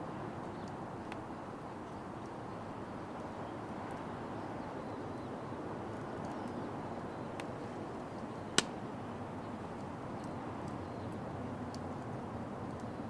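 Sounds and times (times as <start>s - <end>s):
sharp pop from fire: 8.6s - 8.8s.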